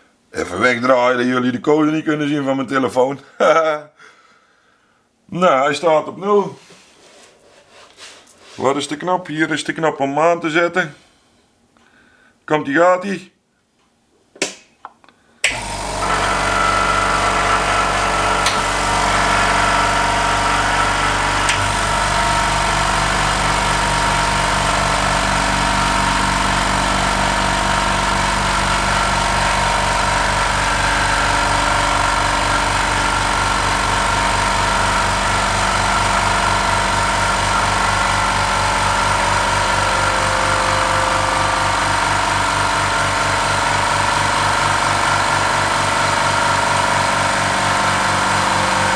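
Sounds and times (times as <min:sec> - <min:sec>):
air compressor running: 0:15.4 - 0:48.9.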